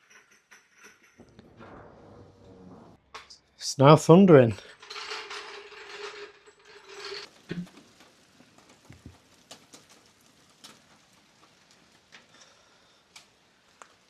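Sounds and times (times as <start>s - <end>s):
hailstones tapping on roof: 7.2s - 14.0s.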